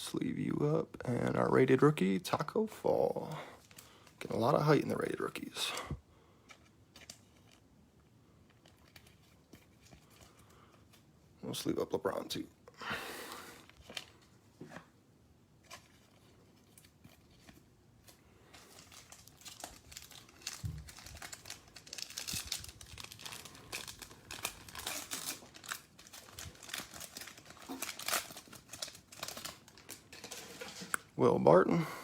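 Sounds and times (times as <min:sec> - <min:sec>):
foil wrapper crinkling and tearing: 0:02.4 - 0:05.8, 0:08.4 - 0:11.7, 0:15.6 - 0:31.2.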